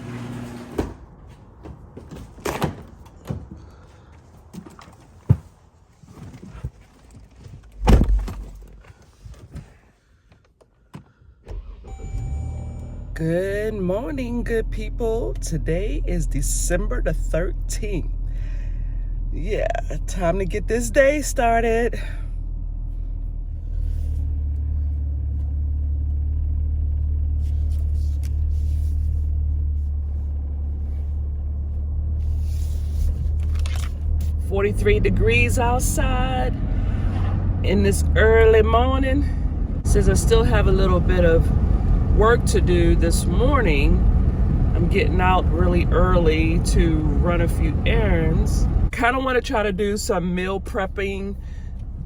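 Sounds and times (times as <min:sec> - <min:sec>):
car engine rumbling: 0:00.0 - 0:52.0
heavy thump: 0:07.8 - 0:08.6.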